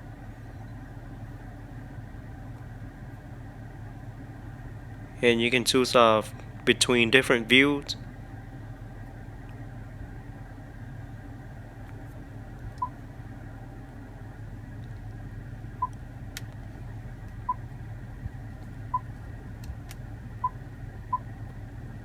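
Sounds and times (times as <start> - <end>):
low cabin hum: 0.0 - 22.0.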